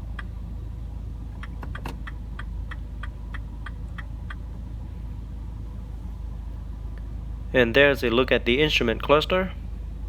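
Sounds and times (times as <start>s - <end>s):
turn signal indicator ticking: 0.0s - 0.4s, 1.3s - 4.6s
steady low hum: 0.0s - 10.0s.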